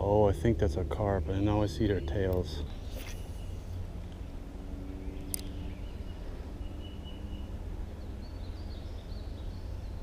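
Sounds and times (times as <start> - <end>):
low outdoor rumble: 0.0 - 10.0
faint bird chirps: 1.5 - 10.0
sharp click: 5.3 - 5.6.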